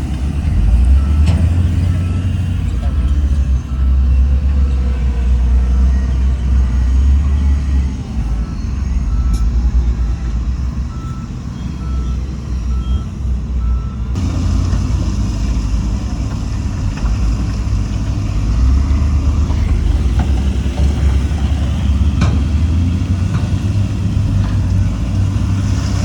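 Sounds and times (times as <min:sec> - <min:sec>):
diesel machinery rumbling: 0:00.0 - 0:26.0
reversing alarm beeping: 0:00.4 - 0:14.2.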